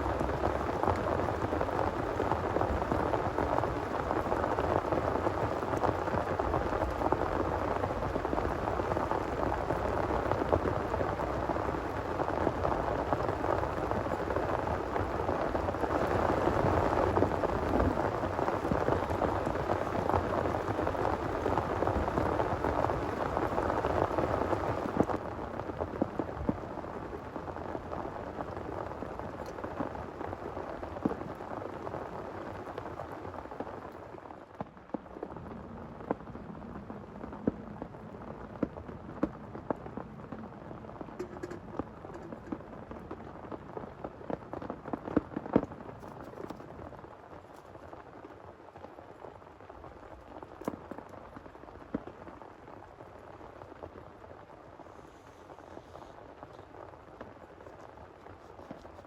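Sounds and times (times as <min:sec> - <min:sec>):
heavy rain rushing: 0:00.0 - 0:29.4
raindrops striking close by: 0:00.0 - 0:59.0.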